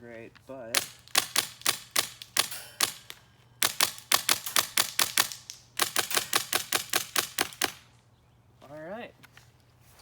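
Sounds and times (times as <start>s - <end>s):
airsoft rifle firing bursts: 0.8s - 7.8s.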